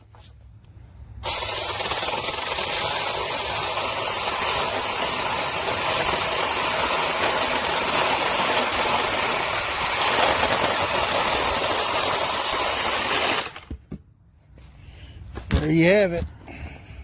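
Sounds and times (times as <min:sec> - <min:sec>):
mini chainsaw cutting wood: 0:01.2 - 0:13.8.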